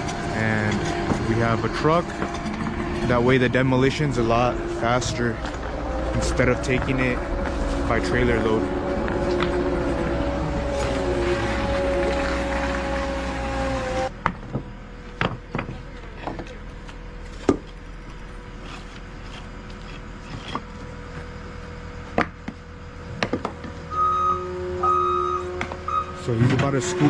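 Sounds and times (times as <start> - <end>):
reversing beeper: 0.0 - 14.1, 23.8 - 27.0
heavy equipment engine running: 0.0 - 27.0.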